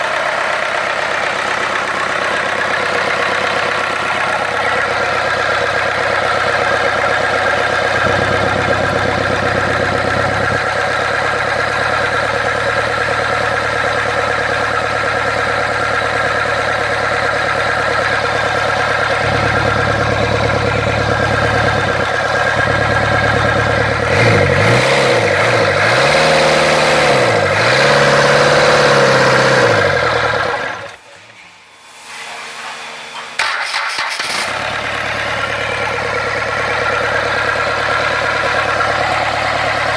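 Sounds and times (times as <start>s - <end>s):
diesel engine idling and revving: 0.0s - 31.1s, 33.4s - 39.9s.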